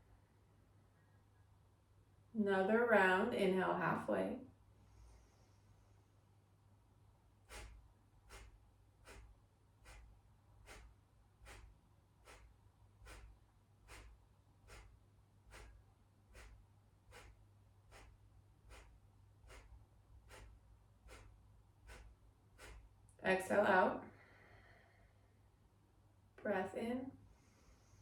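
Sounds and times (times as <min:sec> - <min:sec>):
forceful nasal exhales: 0:04.8 - 0:06.2, 0:07.4 - 0:23.0, 0:24.1 - 0:25.2, 0:27.3 - 0:28.0.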